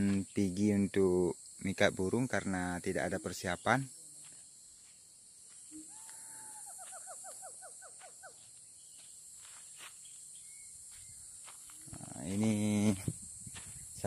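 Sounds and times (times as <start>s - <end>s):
high insect drone: 0.0s - 14.0s
forest bird call: 5.6s - 12.0s.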